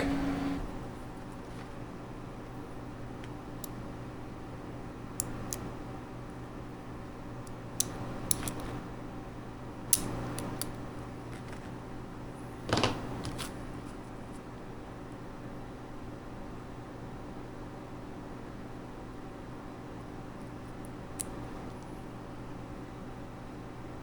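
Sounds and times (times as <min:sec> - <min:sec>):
computer fans humming: 0:00.0 - 0:13.8.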